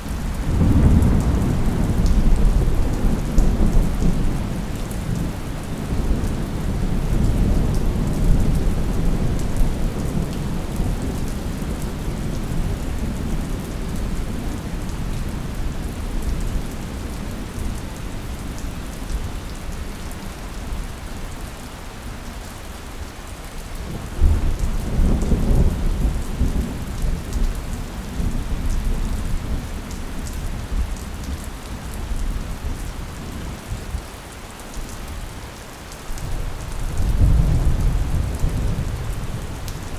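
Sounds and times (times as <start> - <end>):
steady rain: 0.0 - 39.9
thunder rumbling: 0.1 - 13.2, 36.3 - 39.9.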